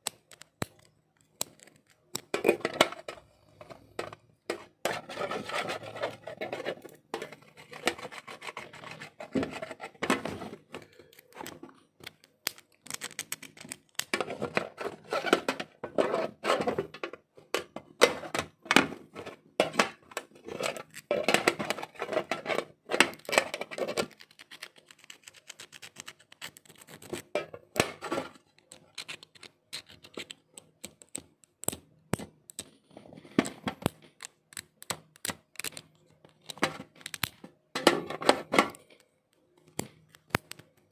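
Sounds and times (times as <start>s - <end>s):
scratching on plastic: 0.2s - 39.0s
tools clicking on plastic casing: 33.4s - 37.4s.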